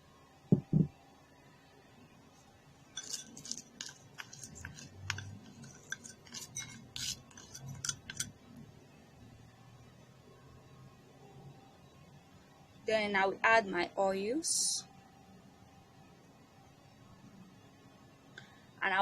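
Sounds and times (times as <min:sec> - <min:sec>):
small clicks and rattles in bowl: 0:03.0 - 0:08.3.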